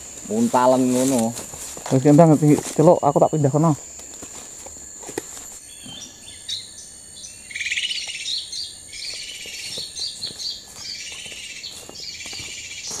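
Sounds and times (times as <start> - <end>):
songbirds chirping: 0.0 - 13.0
rapid bird trill: 5.6 - 13.0.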